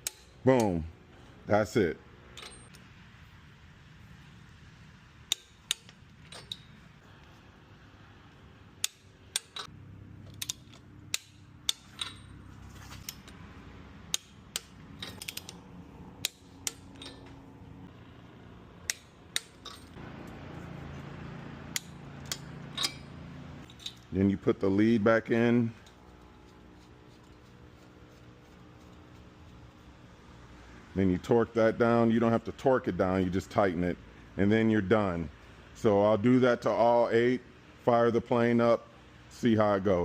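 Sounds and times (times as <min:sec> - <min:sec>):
metal tool clicks and clinks: 0:02.3 - 0:02.8, 0:05.3 - 0:06.8, 0:08.8 - 0:12.4, 0:14.1 - 0:15.6, 0:16.2 - 0:17.4, 0:18.8 - 0:20.0, 0:21.7 - 0:24.1.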